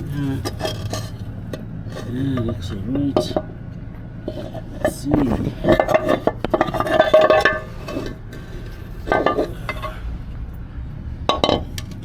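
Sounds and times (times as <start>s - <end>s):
metal clinks and knocks: 0.0s - 10.0s, 11.3s - 12.0s.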